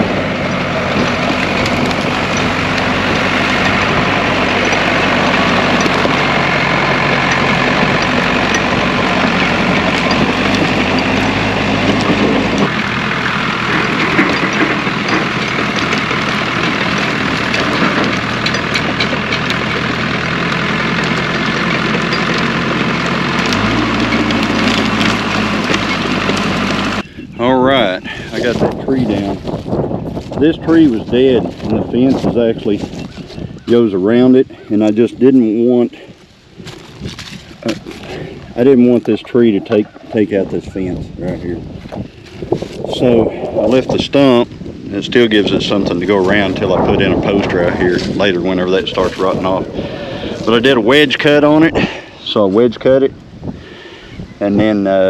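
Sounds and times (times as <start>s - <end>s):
dozer diesel engine running: 0.0s - 55.0s.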